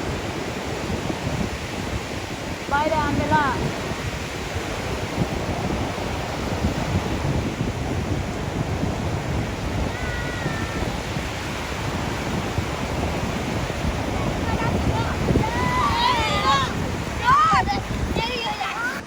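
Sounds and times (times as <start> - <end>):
ocean surf washing: 0.0 - 19.0
wind buffeting microphone: 0.0 - 19.0
faint high cry: 9.8 - 11.0.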